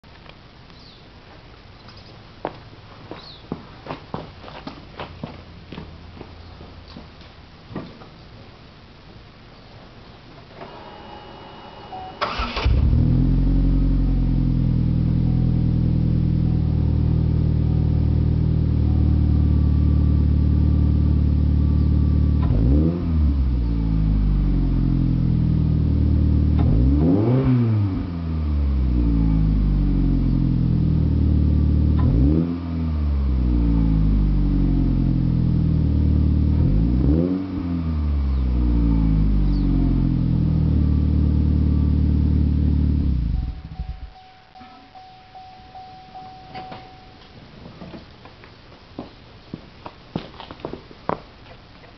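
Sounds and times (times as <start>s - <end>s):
car engine idling and revving: 12.3s - 44.2s.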